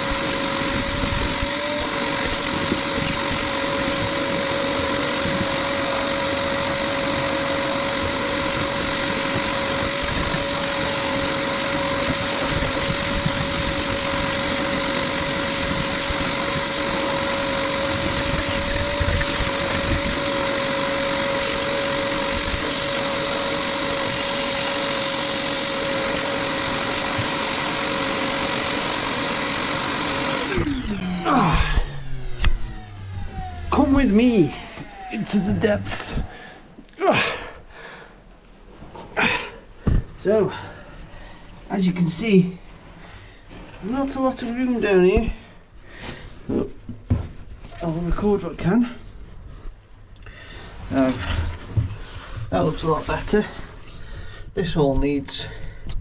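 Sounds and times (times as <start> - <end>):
vacuum cleaner running: 0.0 - 36.5.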